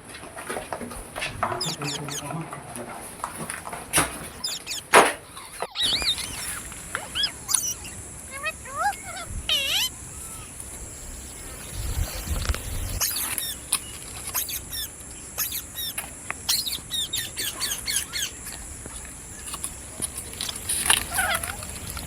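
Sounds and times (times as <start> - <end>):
parrot squawking and chirping: 1.4 - 2.4, 4.3 - 10.6, 12.8 - 18.6, 20.4 - 22.0.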